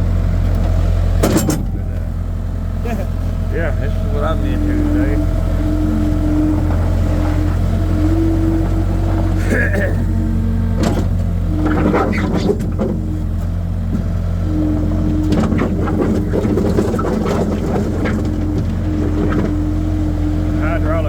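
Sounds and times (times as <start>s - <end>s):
skid steer engine droning: 0.0s - 21.0s
metal clanks and scrapes: 0.7s - 2.1s, 4.7s - 20.7s.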